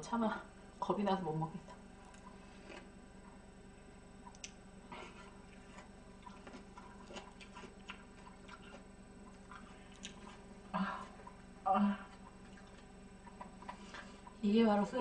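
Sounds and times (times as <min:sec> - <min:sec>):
low electrical hum: 0:00.0 - 0:15.0
close-up chewing: 0:01.6 - 0:03.4, 0:04.2 - 0:14.4
wet mouth clicks: 0:04.2 - 0:04.6, 0:05.5 - 0:10.4, 0:12.1 - 0:14.4.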